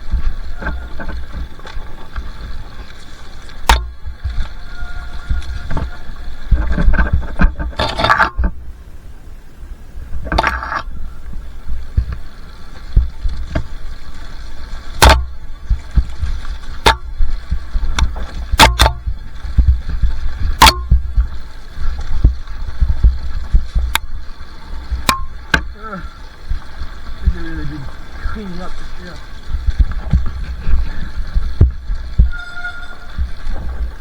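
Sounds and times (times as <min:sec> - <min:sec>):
sharp clicks and knocks: 0:03.6 - 0:04.0, 0:06.5 - 0:08.6, 0:10.3 - 0:10.9, 0:15.0 - 0:21.4, 0:22.0 - 0:24.1, 0:24.8 - 0:25.8
low rumble: 0:15.2 - 0:34.0.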